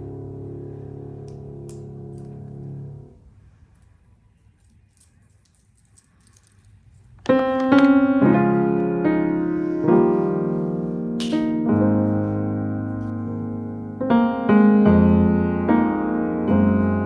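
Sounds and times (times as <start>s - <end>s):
soft piano music: 0.0s - 3.2s, 7.2s - 17.0s.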